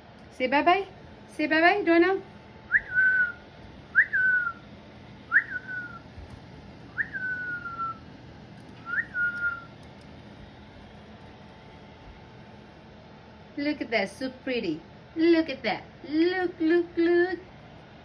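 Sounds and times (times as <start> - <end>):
cockatiel whistling: 2.7 - 4.6, 5.3 - 6.1, 6.9 - 8.0, 8.8 - 9.8.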